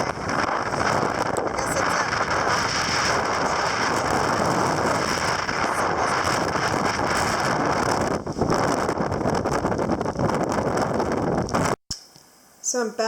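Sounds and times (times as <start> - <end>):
strong wind buffeting microphone: 0.0 - 11.8.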